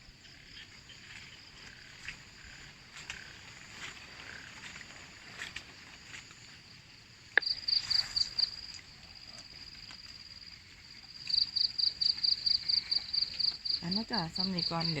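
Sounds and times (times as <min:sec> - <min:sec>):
insect chirping in pulsed trill: 0:06.4 - 0:15.0.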